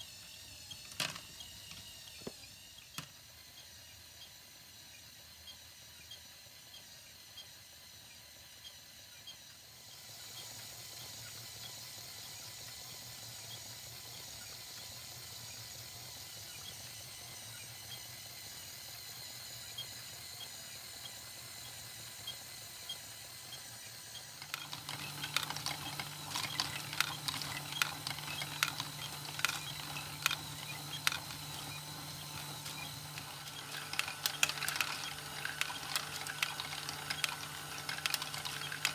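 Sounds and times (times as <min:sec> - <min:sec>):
toy motors humming and ticking: 0:00.0 - 0:38.9
plastic clicks and clatter: 0:00.7 - 0:02.4, 0:24.4 - 0:38.9.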